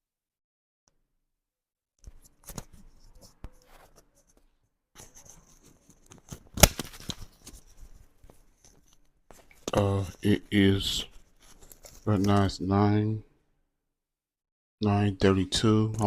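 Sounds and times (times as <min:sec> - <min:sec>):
rustling: 0:05.0 - 0:12.5.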